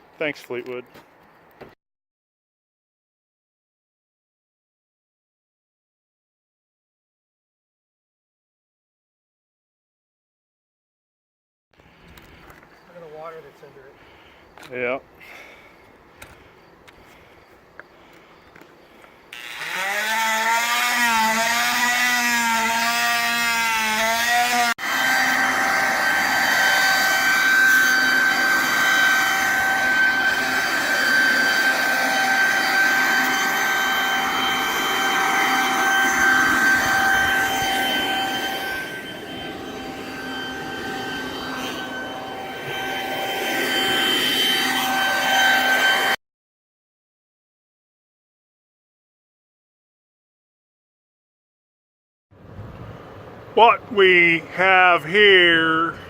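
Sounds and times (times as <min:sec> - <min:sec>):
power tool whining: 0:19.0 - 0:46.2.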